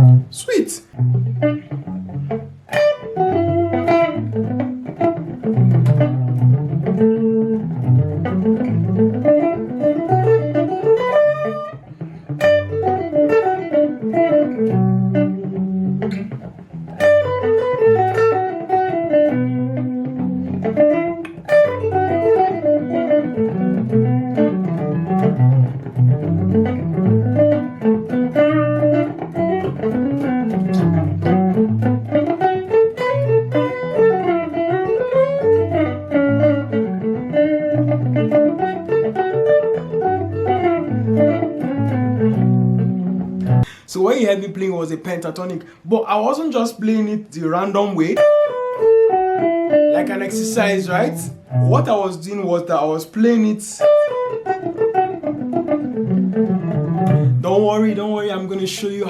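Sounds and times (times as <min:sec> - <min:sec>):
guitar solo in fast runs: 0:53.8 - 0:59.0.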